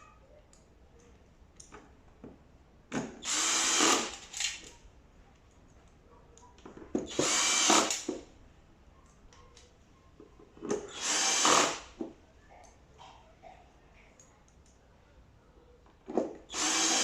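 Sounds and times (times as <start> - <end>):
power drill driving screws: 3.2 - 4.4, 7.1 - 8.2, 10.9 - 11.9, 16.5 - 17.0.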